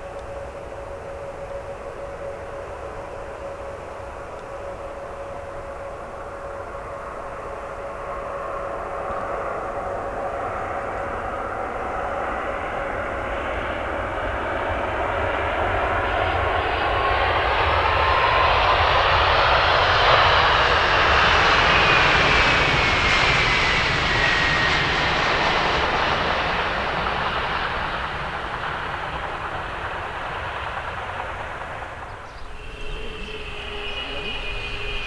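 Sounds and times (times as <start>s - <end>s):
airliner passing close by: 0.0s - 35.0s
engine whine dropping in pitch: 28.4s - 35.0s.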